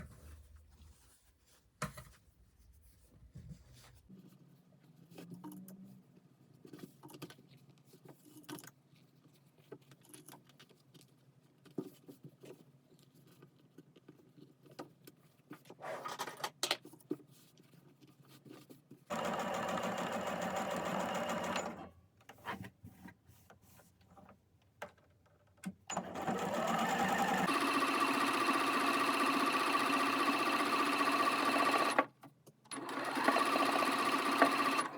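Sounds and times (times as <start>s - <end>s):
sewing machine stitching: 19.1s - 21.9s, 25.9s - 32.1s, 32.7s - 34.9s.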